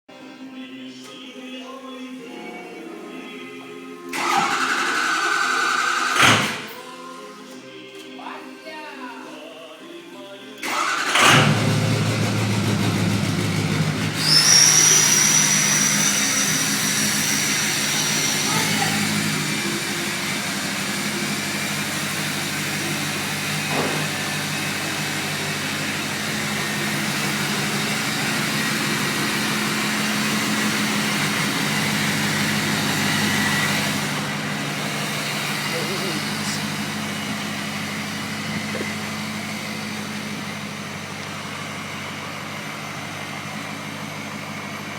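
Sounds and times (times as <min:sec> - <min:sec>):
diesel truck engine idling: 0:10.6 - 0:44.9
turbo whistle: 0:14.2 - 0:17.2.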